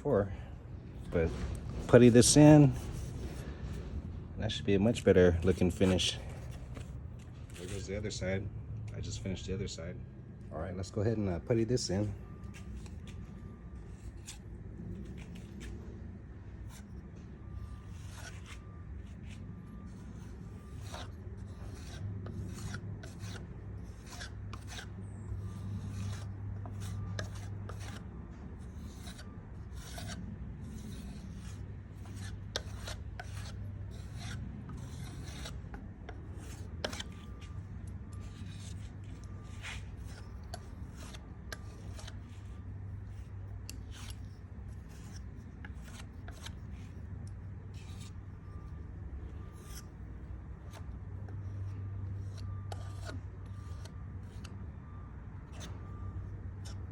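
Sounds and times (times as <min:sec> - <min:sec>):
steady low hum: 0:00.0 - 0:56.9
putty knife scraping wood: 0:17.6 - 0:47.0, 0:47.7 - 0:48.7, 0:49.5 - 0:49.9, 0:50.7 - 0:54.6.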